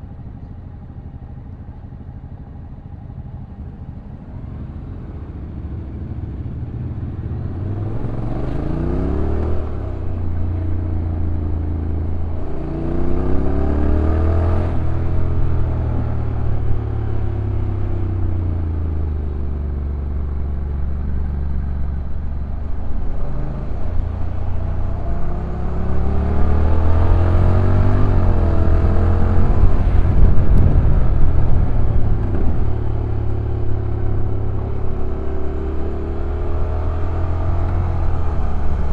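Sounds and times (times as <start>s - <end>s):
motorcycle engine revving: 4.4s - 38.9s
wind rush: 26.3s - 35.4s.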